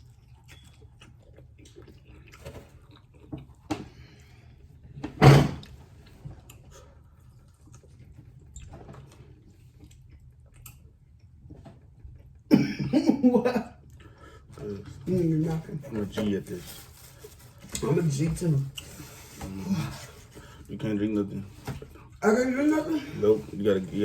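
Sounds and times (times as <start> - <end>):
eating sounds: 0.0 - 4.8, 5.6 - 12.5.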